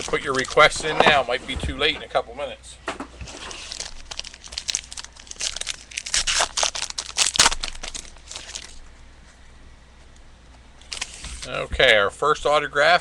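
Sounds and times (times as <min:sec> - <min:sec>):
wrapper crinkling and tearing: 0:00.0 - 0:00.8, 0:03.2 - 0:08.9, 0:10.8 - 0:11.5.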